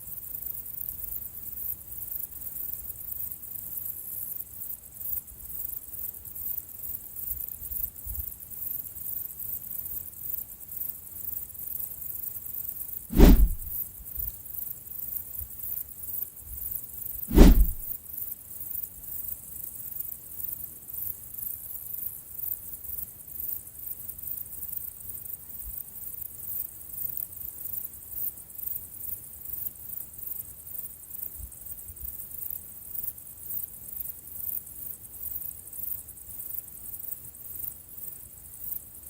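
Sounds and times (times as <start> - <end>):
faint low rumble: 13.1 - 13.7, 17.3 - 17.9
insect chirring: 18.1 - 39.0.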